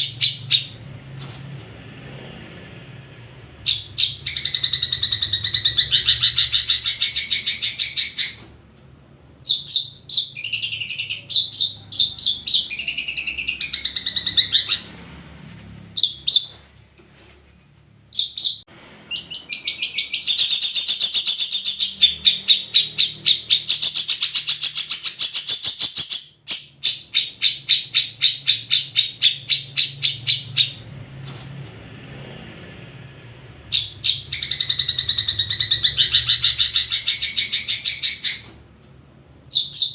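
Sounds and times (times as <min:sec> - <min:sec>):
bird chattering song: 0:00.0 - 0:00.8, 0:03.6 - 0:08.4, 0:09.4 - 0:15.0, 0:18.1 - 0:30.8, 0:33.7 - 0:38.5, 0:39.5 - 0:39.9.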